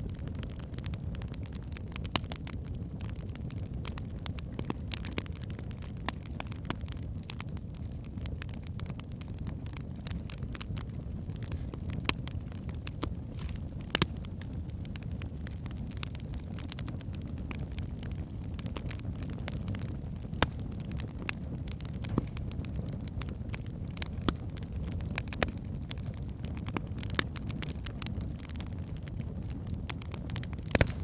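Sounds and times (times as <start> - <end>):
low rumble of flames: 0.0 - 31.0
wood crackling and popping: 0.0 - 31.0.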